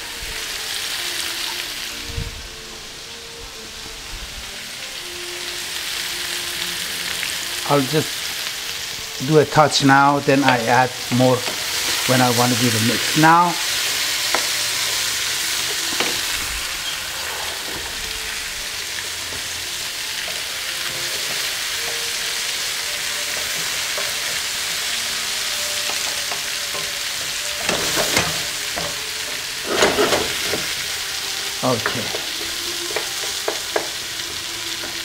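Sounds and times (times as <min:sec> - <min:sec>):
zucchini sizzling in a frying pan: 0:00.0 - 0:35.0
spatula scraping a pan: 0:10.4 - 0:31.0.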